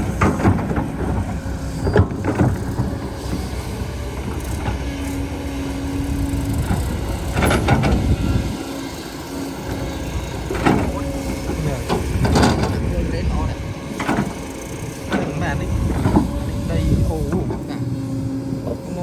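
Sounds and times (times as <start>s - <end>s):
heavy machinery engine rumbling: 0.0s - 19.0s.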